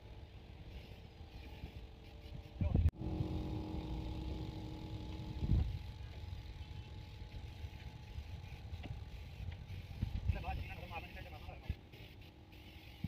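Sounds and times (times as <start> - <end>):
engine rumbling: 0.0 - 10.3.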